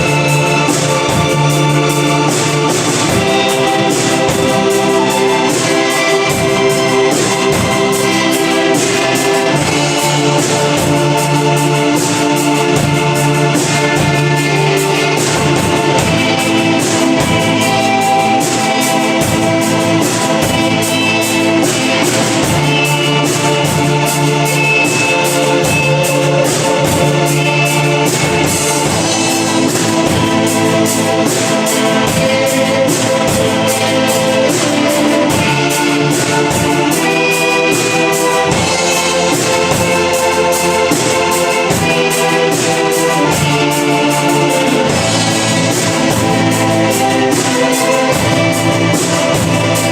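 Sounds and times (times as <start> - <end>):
band playing live: 0.0 - 49.9.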